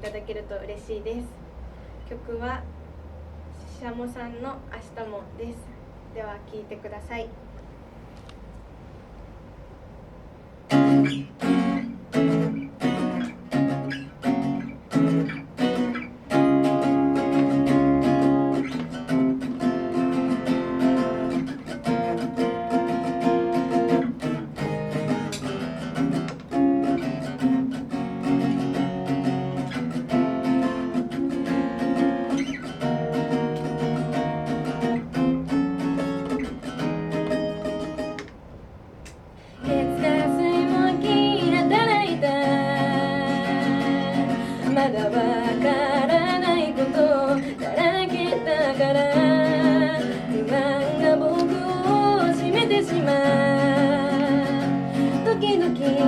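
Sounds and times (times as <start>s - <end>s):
acoustic guitar strumming chords: 10.7s - 38.3s, 39.4s - 56.0s.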